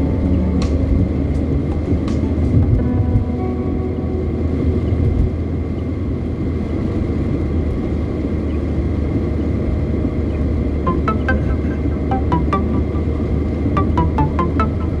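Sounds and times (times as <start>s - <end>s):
short musical notes: 0.0s - 6.0s, 10.9s - 15.0s.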